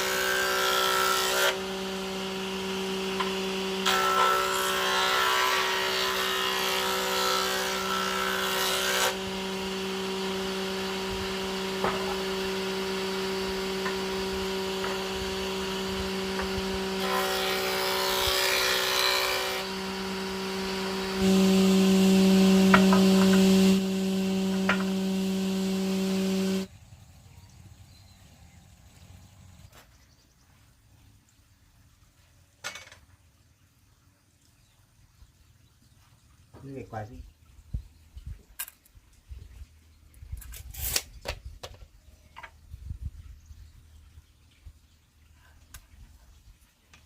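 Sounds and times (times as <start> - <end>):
electric power tool cutting wood: 0.0 - 26.7.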